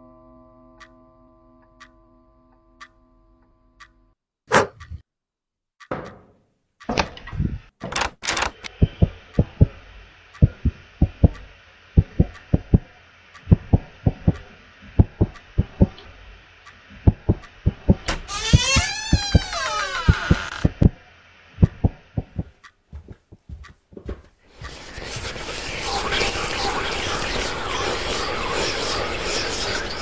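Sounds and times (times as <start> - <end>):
sharp clicks: 6.9 - 9.7
heartbeat thumps: 7.3 - 7.7, 8.7 - 9.8, 10.4 - 12.9, 13.5 - 16.0, 17.0 - 18.2, 20.1 - 21.0, 21.6 - 24.8.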